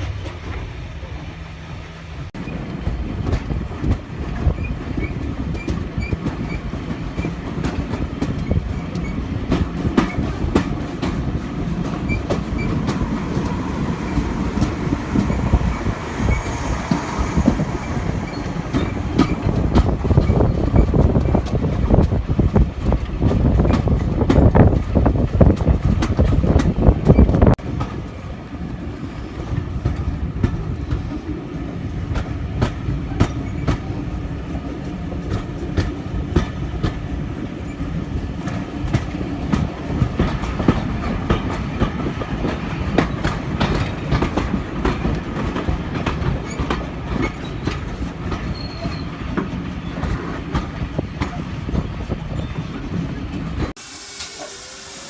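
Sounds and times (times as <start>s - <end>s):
train rumble: 0.0s - 55.0s
wheels clicking over rail joints: 2.4s - 28.3s, 32.0s - 53.7s
faint wheel squeal: 48.5s - 49.2s.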